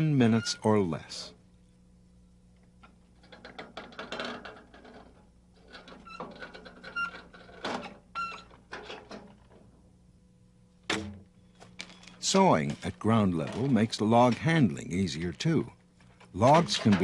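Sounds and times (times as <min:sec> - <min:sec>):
faint steady hum: 0:00.0 - 0:17.0
metal parts clanking and rattling: 0:03.2 - 0:09.6, 0:11.8 - 0:14.6, 0:16.0 - 0:17.0.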